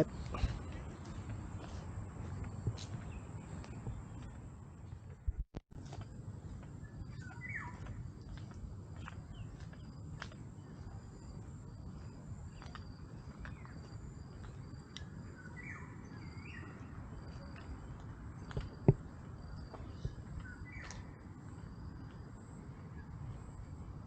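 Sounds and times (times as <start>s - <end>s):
bird calls: 6.8s - 10.8s, 11.4s - 18.9s, 19.6s - 21.2s.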